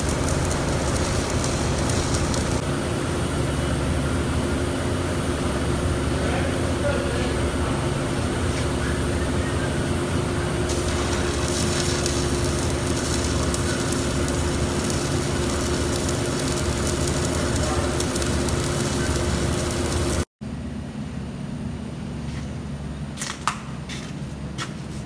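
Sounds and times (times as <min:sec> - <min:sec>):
welding arc crackling: 0:00.0 - 0:02.7, 0:10.5 - 0:20.3.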